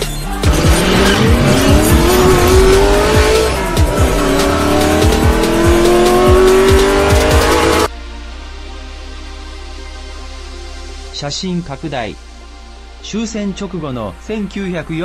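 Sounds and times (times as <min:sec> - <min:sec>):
electronic music with thumping beat: 0:00.0 - 0:07.9
race car engine accelerating: 0:00.4 - 0:07.9.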